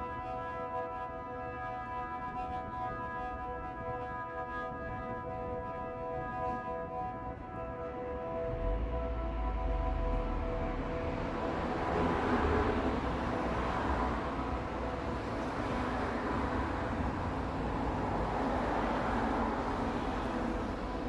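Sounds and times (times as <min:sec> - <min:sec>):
noisy outdoor rumble: 0:08.3 - 0:21.0.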